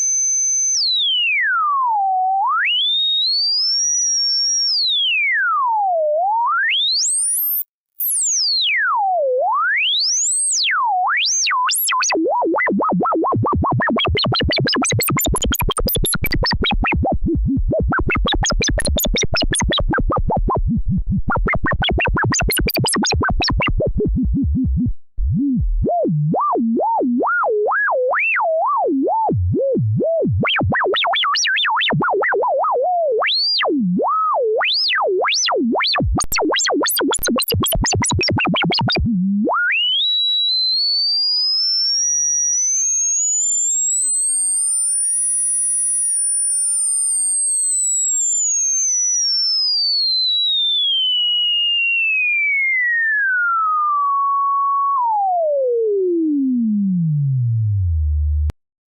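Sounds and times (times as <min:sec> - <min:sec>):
buzzy synthesizer notes: 0:11.7 - 0:26.5, 0:35.8 - 0:39.0
sliding synthesizer tone: 0:11.8 - 0:26.0, 0:35.9 - 0:39.0.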